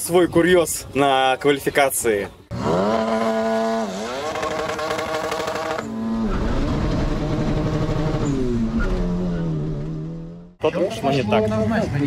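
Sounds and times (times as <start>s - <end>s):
racing car engines at high revs: 2.5s - 10.6s.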